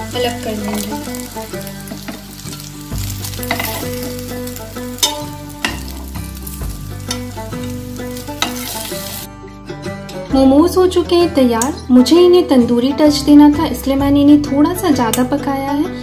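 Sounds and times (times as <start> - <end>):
dumplings sizzling in hot oil: 0.0 - 9.3
metal spatula scraping pan: 3.3 - 5.9, 7.0 - 9.3.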